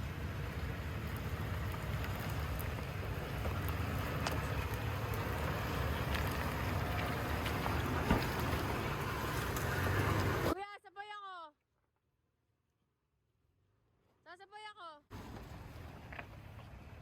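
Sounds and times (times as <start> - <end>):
off-road vehicle rumbling: 0.0 - 10.6, 15.1 - 17.0
vehicle knocks: 6.0 - 10.5.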